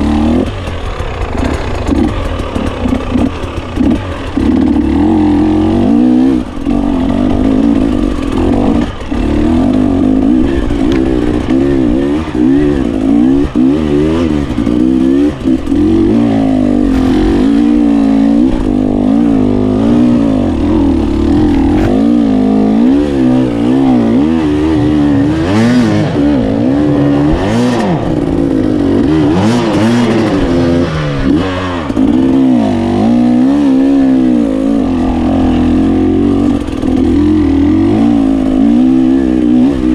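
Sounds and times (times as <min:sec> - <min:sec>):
motorcycle engine revving: 0:00.0 - 0:39.9
rushes of noise: 0:05.2 - 0:31.2.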